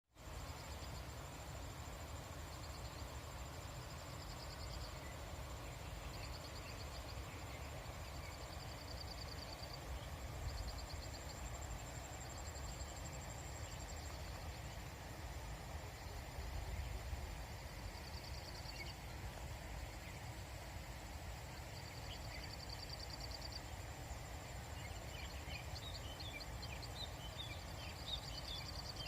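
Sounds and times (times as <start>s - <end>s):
insect trills: 0.1s - 29.0s.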